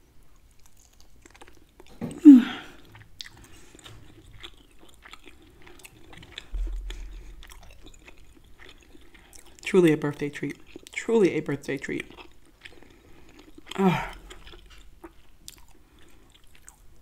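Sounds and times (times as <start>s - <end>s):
close-up chewing meat: 0.0s - 2.1s, 2.7s - 17.0s
low rumble: 6.4s - 8.0s.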